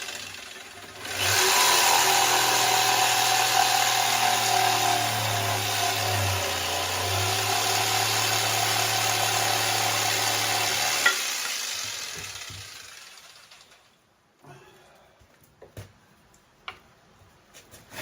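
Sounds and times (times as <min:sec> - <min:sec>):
power tool motor humming: 0:00.0 - 0:13.8.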